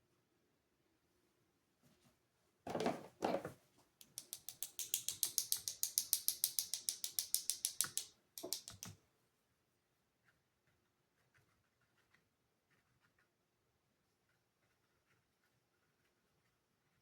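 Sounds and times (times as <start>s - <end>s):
ratcheting clicks: 4.0s - 8.9s.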